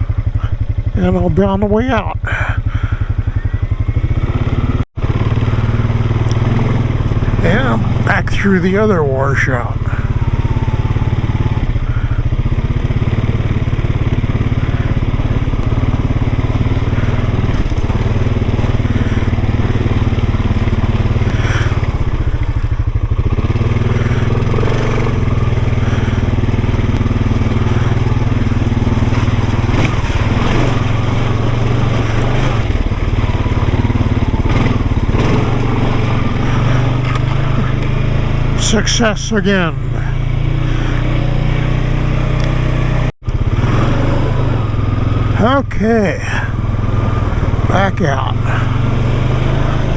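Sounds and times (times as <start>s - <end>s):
off-road vehicle engine at low throttle: 0.0s - 49.9s
wheels crunching over rock and gravel: 0.0s - 49.9s.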